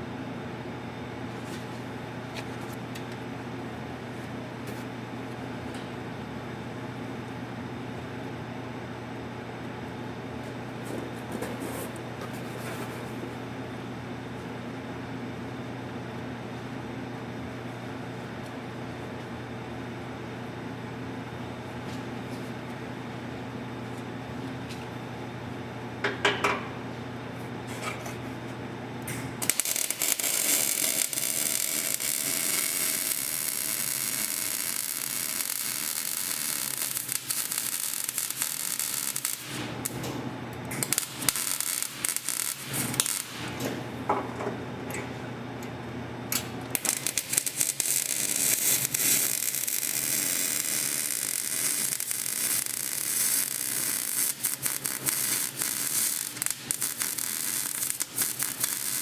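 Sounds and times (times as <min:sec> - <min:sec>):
welding arc crackling and sizzling: 0:29.0 - 0:43.9, 0:46.3 - 0:59.0.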